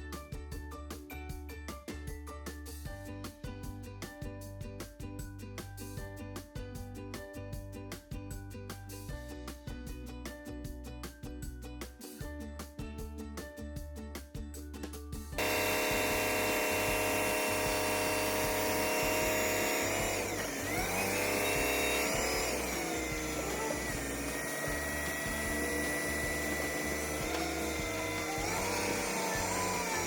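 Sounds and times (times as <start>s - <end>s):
machine motor whine and hum: 15.4s - 30.0s.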